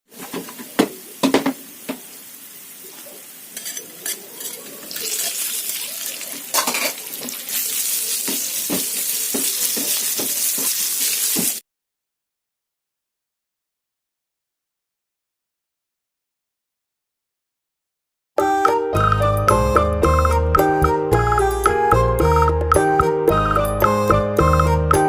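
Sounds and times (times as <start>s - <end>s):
green beans sizzling in oil: 0.1s - 11.6s
spatula knocking and scraping pan: 3.6s - 5.3s, 8.2s - 11.6s.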